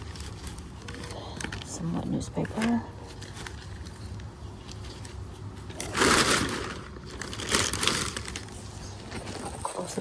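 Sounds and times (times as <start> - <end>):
packing material rustling: 0.0 - 9.8.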